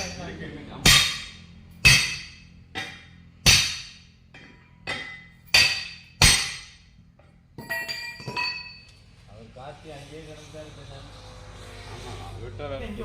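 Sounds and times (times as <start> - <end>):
hammer striking metal: 0.0 - 6.9, 7.6 - 8.9.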